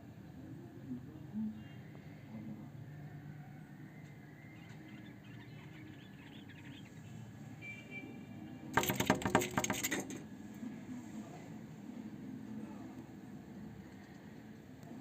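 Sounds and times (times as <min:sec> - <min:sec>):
small birds chirping faintly: 0:01.2 - 0:10.4
rapid bird calls: 0:04.4 - 0:07.3
wings flapping: 0:08.8 - 0:10.2.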